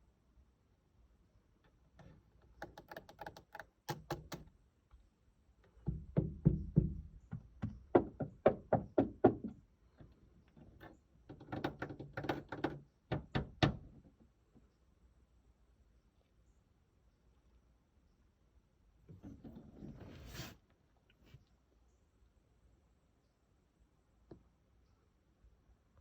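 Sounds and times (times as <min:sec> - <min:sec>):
soft knocks and thuds: 0:05.8 - 0:09.6.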